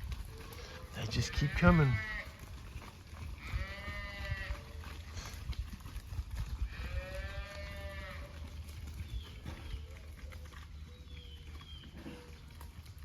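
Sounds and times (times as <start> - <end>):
calf bawling: 0.5 - 2.3.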